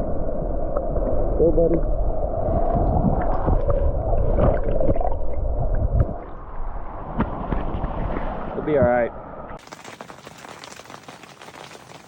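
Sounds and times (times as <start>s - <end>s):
heavy low rumble: 0.0s - 9.6s.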